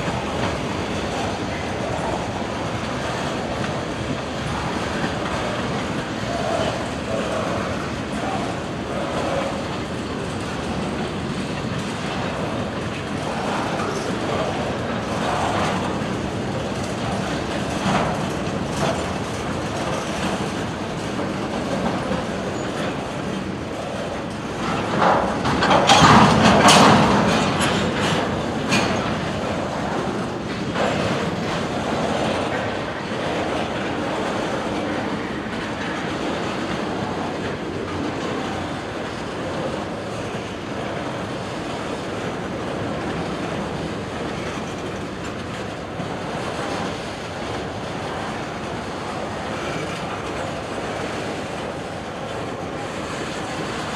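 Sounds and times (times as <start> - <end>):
train wheels clacking over rail joints: 0.0 - 53.9
high squealing of train wheels: 21.7 - 25.0.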